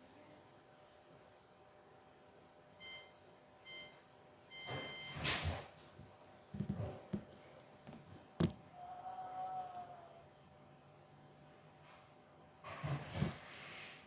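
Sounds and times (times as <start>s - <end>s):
washing machine panel beeping: 2.8s - 5.3s.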